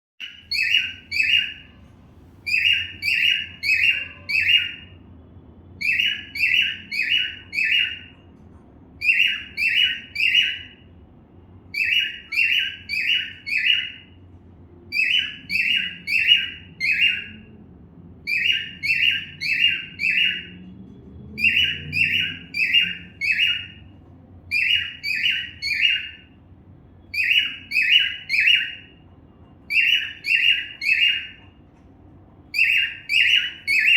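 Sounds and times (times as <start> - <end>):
cockatiel chirping: 0.2 - 1.8, 2.4 - 5.0, 5.8 - 8.2, 9.0 - 10.8, 11.7 - 14.1, 14.9 - 17.5, 18.3 - 20.6, 21.4 - 23.8, 24.5 - 26.3, 27.1 - 29.0, 29.7 - 31.5, 32.5 - 33.9.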